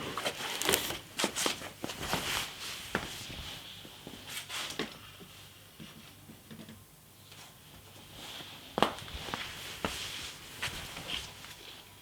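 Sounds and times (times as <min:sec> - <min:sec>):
packaging being handled: 0:00.2 - 0:01.7.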